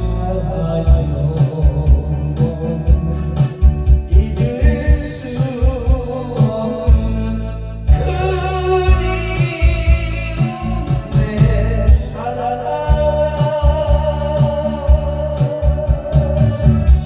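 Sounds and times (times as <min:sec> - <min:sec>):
band playing bass guitar drums: 0:00.0 - 0:17.0
person singing: 0:00.0 - 0:17.0.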